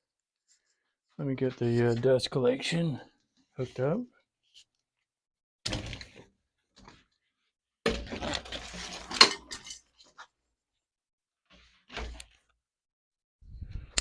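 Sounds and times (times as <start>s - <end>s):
hose scraping and rattling: 8.1s - 10.2s.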